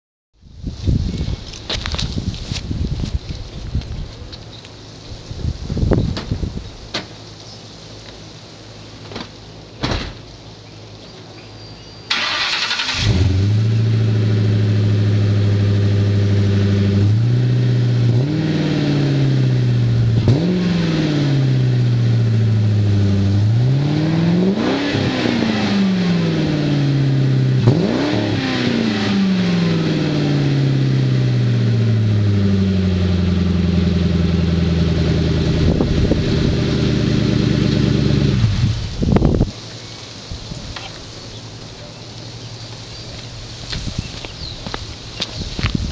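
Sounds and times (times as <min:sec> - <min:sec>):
engine starter cranking: 0:12.1 - 0:13.5
car engine idling and revving: 0:12.1 - 0:40.1, 0:40.7 - 0:45.9.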